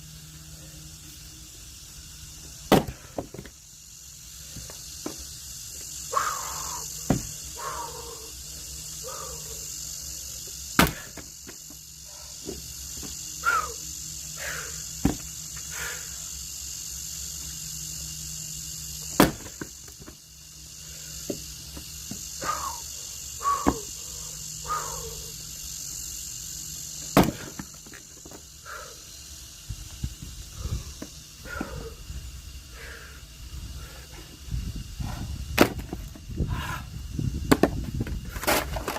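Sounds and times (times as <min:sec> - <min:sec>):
crickets chirping: 0:00.0 - 0:38.9
axe splitting logs: 0:02.7 - 0:03.5, 0:10.8 - 0:11.3, 0:19.1 - 0:20.1, 0:27.2 - 0:27.7, 0:35.6 - 0:36.0.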